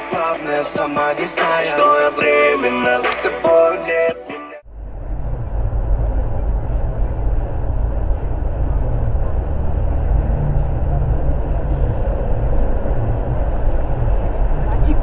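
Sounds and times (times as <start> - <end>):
car engine and road rumble: 4.6 - 15.0.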